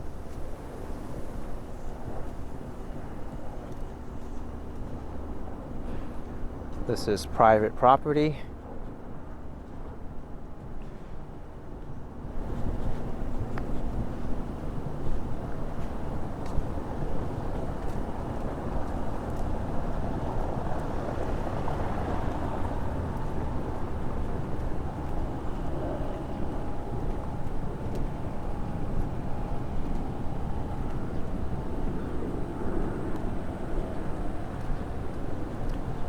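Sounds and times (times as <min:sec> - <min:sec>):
street traffic rumble: 0:00.0 - 0:36.0
faint steady hum: 0:12.2 - 0:36.0.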